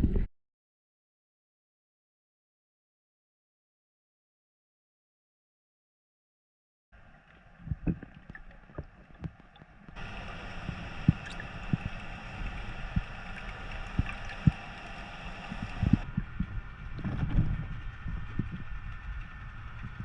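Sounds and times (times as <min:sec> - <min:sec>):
muffled water sloshing: 0:07.0 - 0:20.0.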